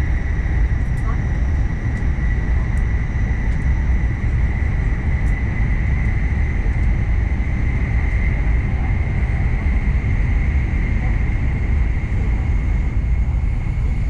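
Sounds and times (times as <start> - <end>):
train cabin deep rumble: 0.0 - 14.0.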